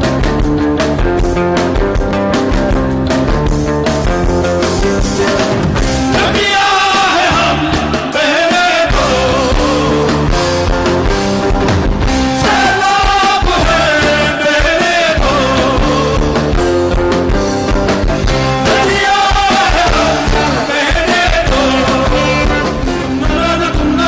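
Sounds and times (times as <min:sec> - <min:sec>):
bass: 0:00.0 - 0:24.0
drums: 0:00.0 - 0:24.0
sliding melody line: 0:18.7 - 0:23.5.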